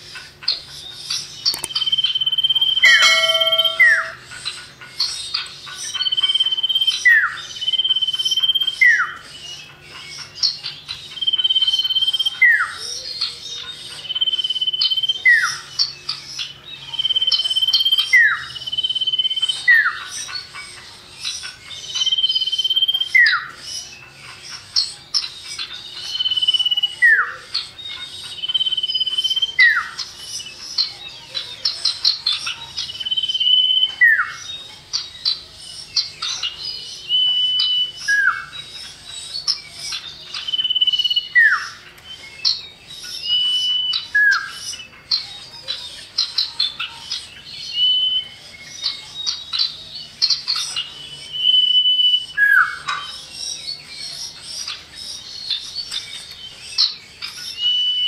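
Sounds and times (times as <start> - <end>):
rapid high bird twittering: 0.0 - 58.0
bird calling high whistle: 1.5 - 4.2, 33.1 - 34.4, 37.1 - 38.5, 40.4 - 42.5, 43.2 - 44.7, 47.7 - 48.5, 51.0 - 52.9, 57.5 - 58.0.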